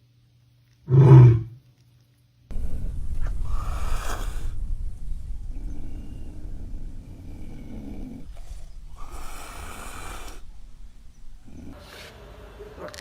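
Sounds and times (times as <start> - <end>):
wild cat growling: 0.9 - 1.6, 5.5 - 11.8
wild cat hissing call: 0.9 - 1.6, 3.3 - 4.7, 5.5 - 12.2.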